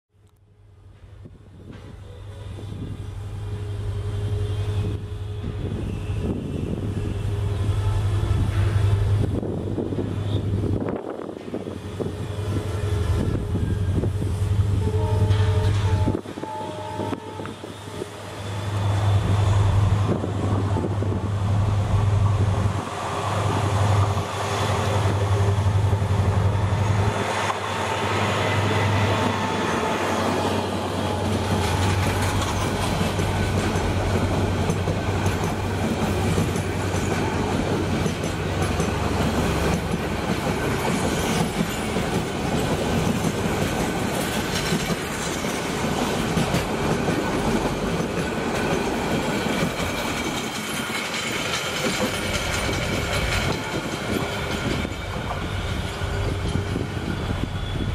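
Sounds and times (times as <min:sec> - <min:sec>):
diesel locomotive engine drone: 0:00.3 - 0:57.9
train wheels clattering: 0:28.4 - 0:57.9.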